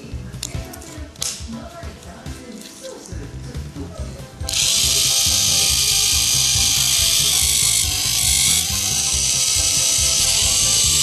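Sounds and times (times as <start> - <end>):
background music with steady beat: 0.0 - 11.0
toy train motor whirring rattle: 4.4 - 11.0.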